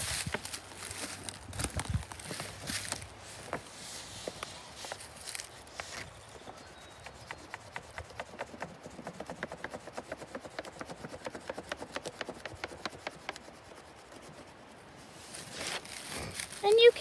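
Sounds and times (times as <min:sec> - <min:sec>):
crayon scratching on paper over bark: 0:03.8 - 0:17.0.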